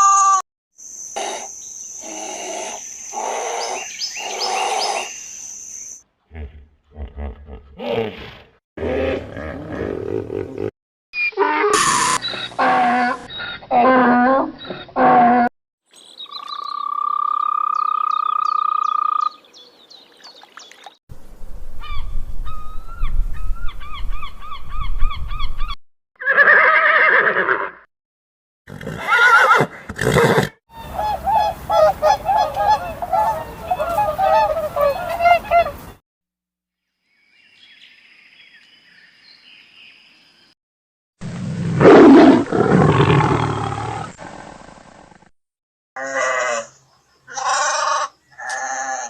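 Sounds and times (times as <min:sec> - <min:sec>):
animal calls: 0:29.0 - 0:35.8.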